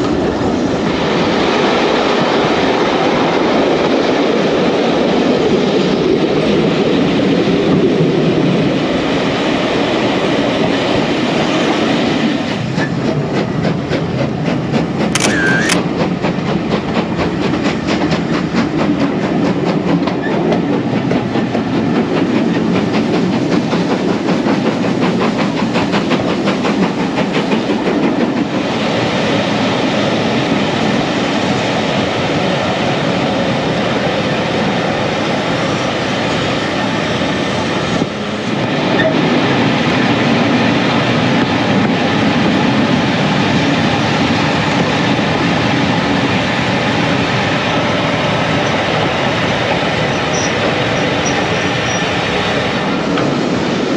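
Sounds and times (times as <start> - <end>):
train rumbling: 0.0 - 15.1, 15.7 - 53.9
brief sharp sound: 15.2 - 15.8.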